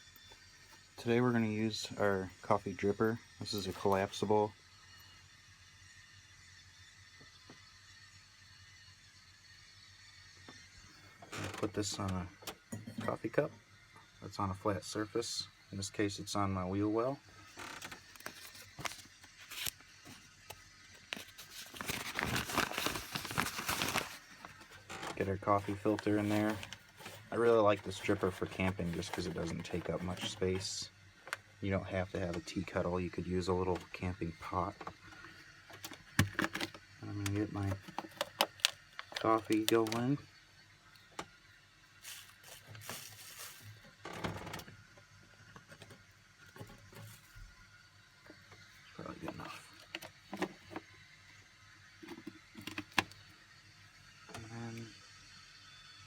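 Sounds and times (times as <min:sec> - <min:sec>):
paper filter crinkling: 0:17.6 - 0:20.3, 0:21.0 - 0:30.6, 0:37.8 - 0:40.0, 0:42.0 - 0:43.8.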